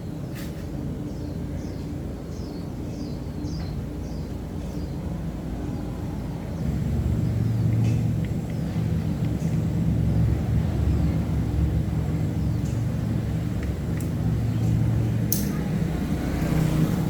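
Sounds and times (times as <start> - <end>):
motor rumbling: 5.3 - 17.0.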